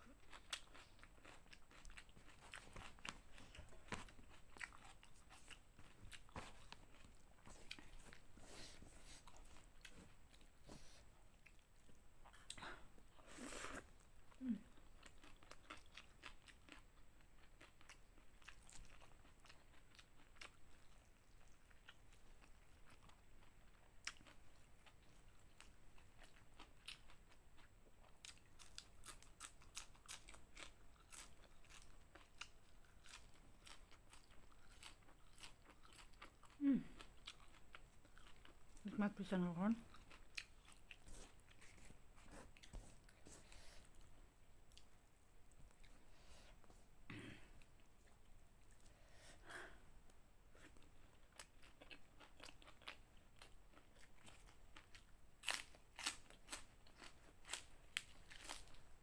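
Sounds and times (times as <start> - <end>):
wet chewing: 0.1 - 8.2, 24.0 - 38.9, 39.8 - 44.1
crunching raw vegetables: 25.6 - 38.6, 50.6 - 58.9.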